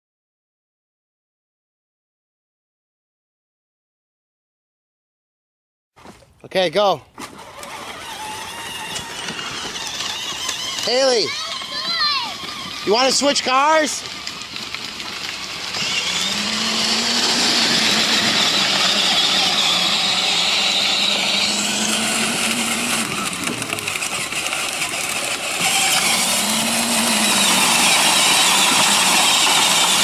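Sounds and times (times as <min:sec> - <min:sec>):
toy truck motor whining: 0:07.2 - 0:30.0
wheels hissing over ground: 0:07.2 - 0:30.0.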